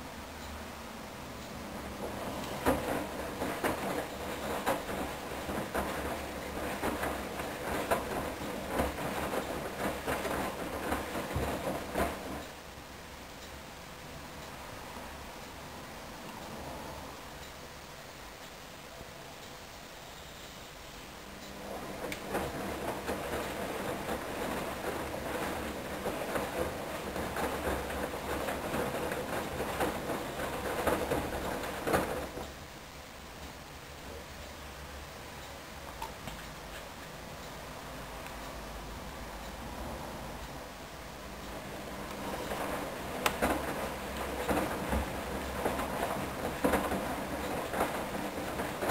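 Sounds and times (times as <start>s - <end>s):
quiet steady background: 0.0s - 48.9s
washing machine drum tumbling: 1.7s - 12.6s, 21.6s - 32.6s, 41.4s - 48.9s.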